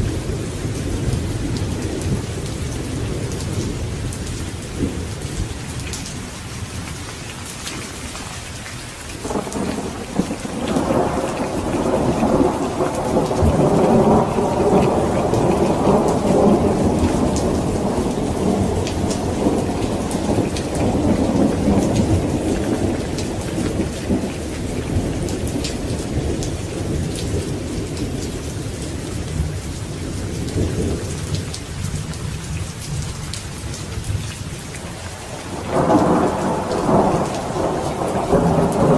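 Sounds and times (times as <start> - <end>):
heavy rain pattering: 0.0 - 38.9
thunder rumbling: 9.2 - 38.9.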